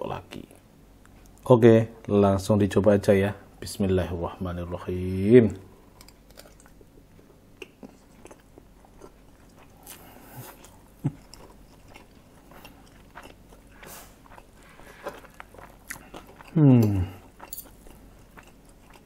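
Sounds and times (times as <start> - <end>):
person chewing with mouth clicks: 6.0 - 19.0.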